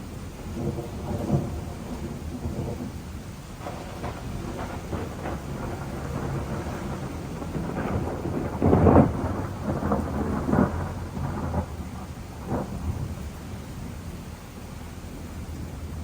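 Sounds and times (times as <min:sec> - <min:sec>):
thunder rumbling: 0:00.0 - 0:16.0.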